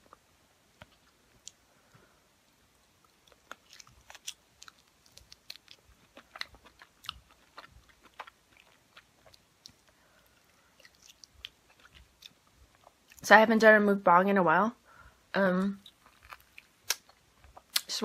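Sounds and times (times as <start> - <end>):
chewing with wet mouth smacks: 3.0 - 13.2.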